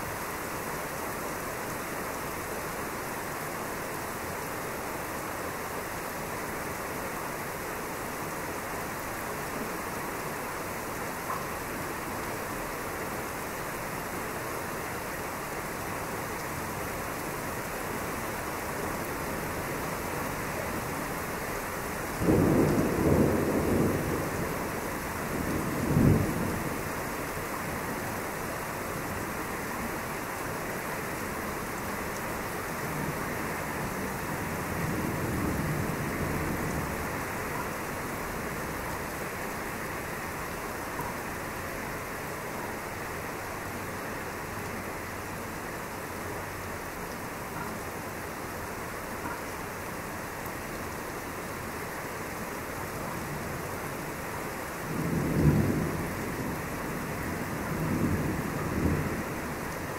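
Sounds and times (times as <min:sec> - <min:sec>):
rain hissing: 0:00.5 - 0:59.9
rumble of thunder: 0:22.2 - 0:27.0, 0:33.8 - 0:37.8, 0:54.9 - 0:59.8.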